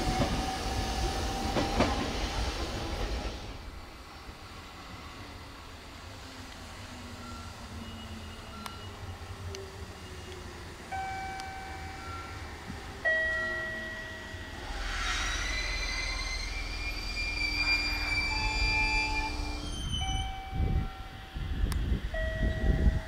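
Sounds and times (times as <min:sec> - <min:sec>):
train moving: 0:00.0 - 0:23.0
high whine: 0:13.6 - 0:22.0.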